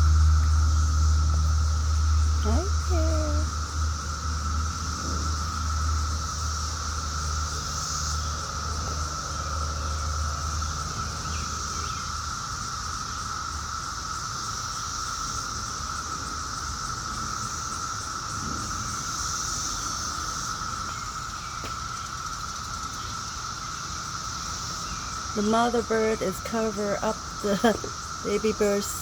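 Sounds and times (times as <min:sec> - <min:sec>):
insect chorus trilling: 0:00.0 - 0:29.0.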